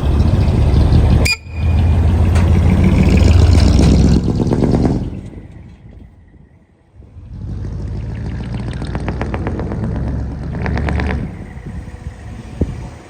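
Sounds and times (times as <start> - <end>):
diesel truck exhaust rumble: 0.0 - 13.0.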